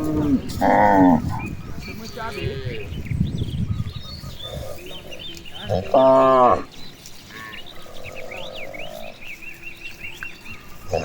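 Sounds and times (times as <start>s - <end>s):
cow mooing: 0.0s - 1.3s, 5.6s - 6.7s.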